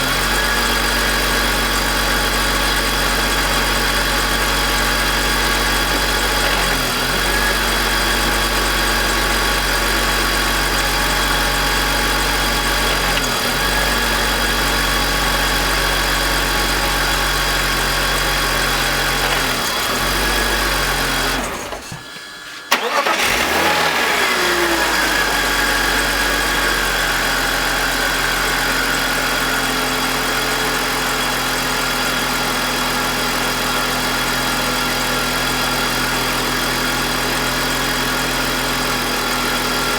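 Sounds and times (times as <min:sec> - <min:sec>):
car engine idling: 0:00.0 - 0:21.6
engine cranking and starting: 0:00.0 - 0:29.0.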